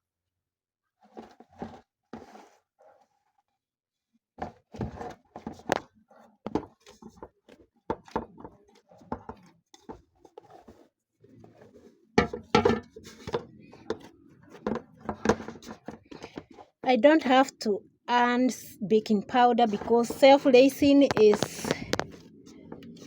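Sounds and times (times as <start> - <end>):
kitchen utensils knocking and clattering: 12.2 - 16.6, 19.2 - 23.0.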